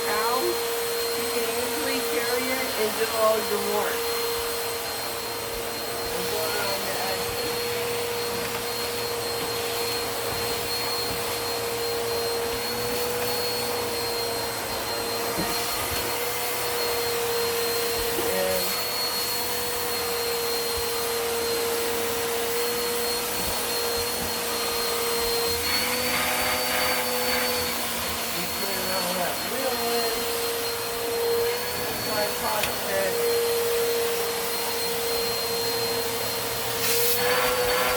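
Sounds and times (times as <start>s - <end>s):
vacuum cleaner running: 0.0s - 37.9s.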